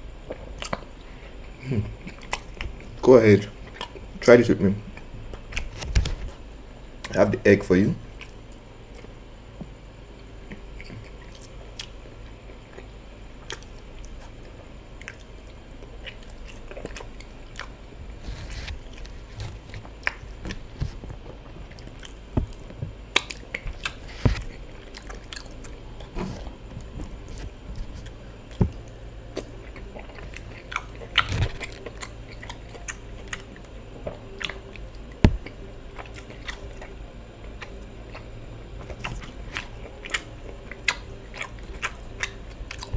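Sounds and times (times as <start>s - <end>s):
low steady hum: 0.0s - 42.9s
chewing and mouth smacks: 0.3s - 0.9s, 2.0s - 3.0s, 8.1s - 9.1s, 10.5s - 12.0s, 12.7s - 21.0s, 21.7s - 33.6s, 37.6s - 42.9s.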